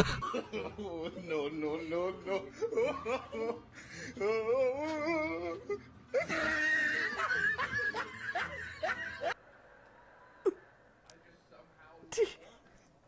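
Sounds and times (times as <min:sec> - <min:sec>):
person laughing hard: 0:06.2 - 0:09.4.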